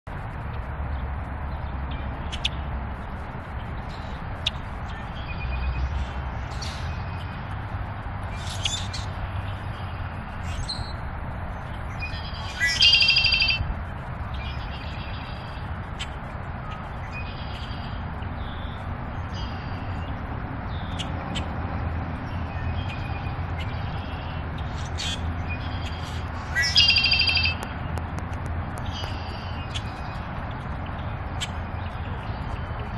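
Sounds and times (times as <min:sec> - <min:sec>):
bird chirping: 0:08.2 - 0:11.0, 0:11.7 - 0:13.6, 0:14.3 - 0:21.5, 0:22.2 - 0:27.8
long bird calls: 0:11.9 - 0:13.6, 0:22.4 - 0:27.7.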